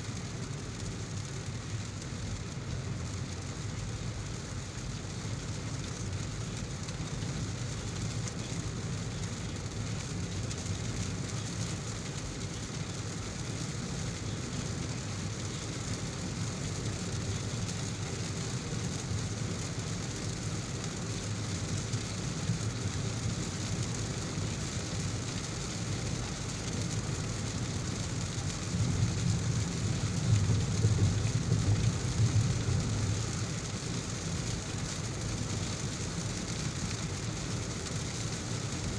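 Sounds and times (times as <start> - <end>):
heavy rain: 0.0 - 38.9
steady low rumble: 27.8 - 34.7.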